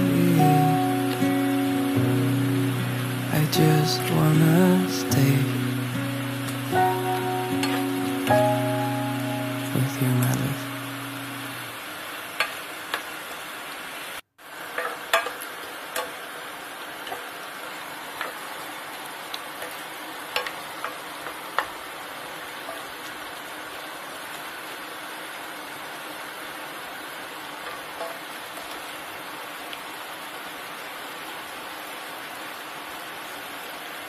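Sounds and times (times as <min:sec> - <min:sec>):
vegetables sizzling in a pan: 0:00.0 - 0:34.0
spatula tapping and scraping pan: 0:14.8 - 0:16.2.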